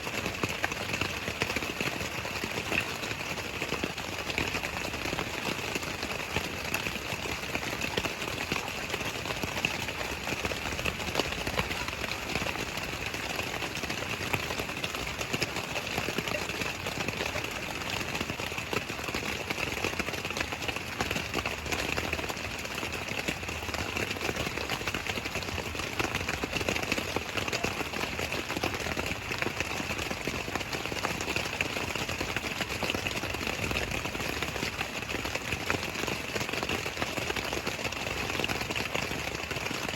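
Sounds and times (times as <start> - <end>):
raindrops ticking: 0.0 - 39.9
steady rain falling: 0.0 - 39.9.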